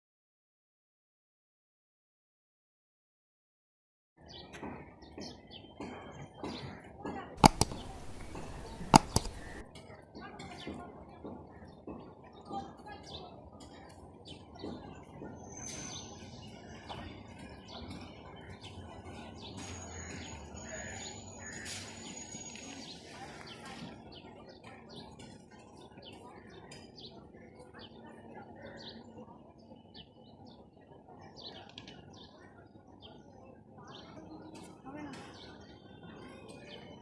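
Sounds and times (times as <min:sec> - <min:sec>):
small birds chirping: 0:04.2 - 0:09.7.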